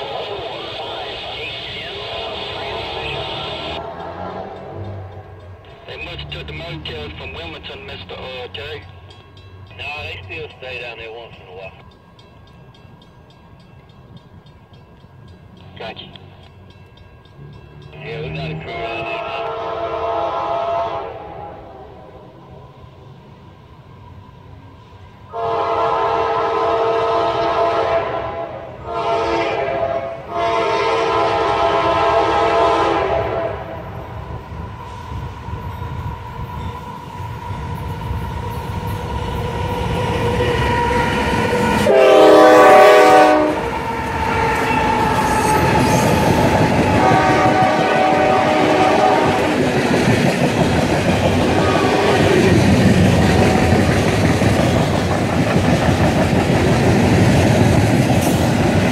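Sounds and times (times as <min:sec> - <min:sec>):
train cars rumbling and clacking: 0:00.0 - 0:58.9
train air horn blasts: 0:02.0 - 0:05.2, 0:18.8 - 0:22.0, 0:25.3 - 0:33.9, 0:40.2 - 0:49.6, 0:51.5 - 0:52.4.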